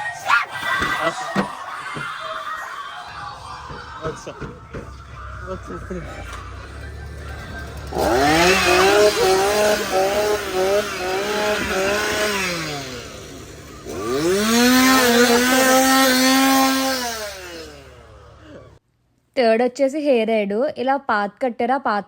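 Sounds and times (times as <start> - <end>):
small engine revving: 5.1 - 18.8.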